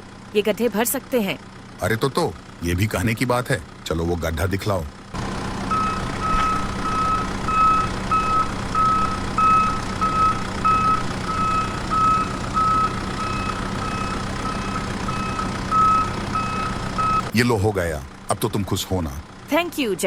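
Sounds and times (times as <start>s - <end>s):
low engine hum: 0.0s - 20.0s
reversing alarm beeping: 5.7s - 17.3s.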